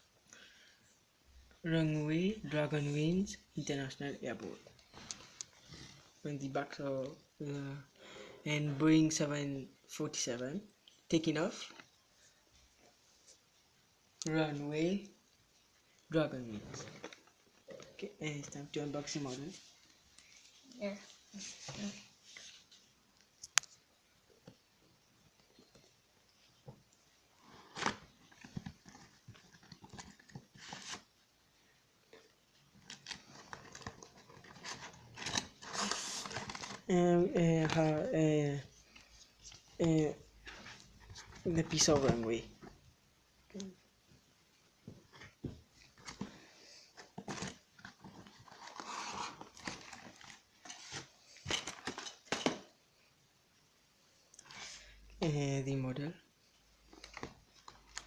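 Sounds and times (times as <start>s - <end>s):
packaging clicks and crinkles: 32.8s - 36.9s
packaging rustling: 32.8s - 36.9s, 47.0s - 52.6s.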